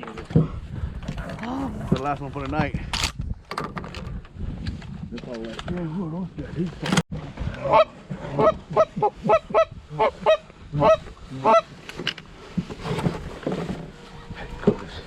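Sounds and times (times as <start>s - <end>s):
background noise: 0.0s - 15.0s
goose-like honks: 7.6s - 11.7s.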